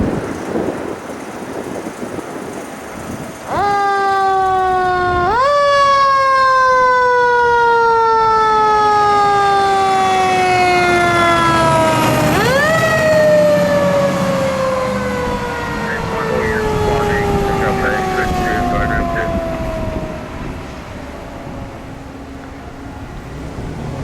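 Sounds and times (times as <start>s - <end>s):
fire siren winding up and down: 3.5s - 21.1s.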